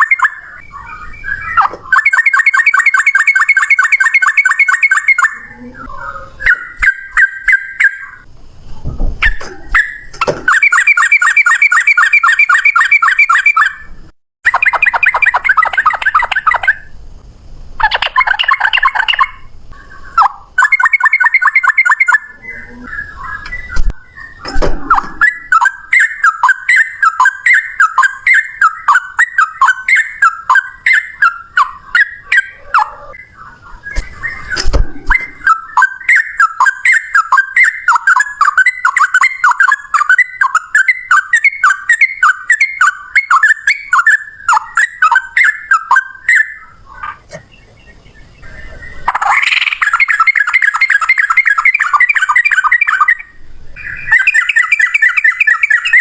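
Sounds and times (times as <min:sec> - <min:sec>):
bulbul singing repeated notes: 0:00.0 - 0:08.3, 0:09.2 - 0:17.0, 0:17.8 - 0:56.0
sharp knocks: 0:08.9 - 0:10.5.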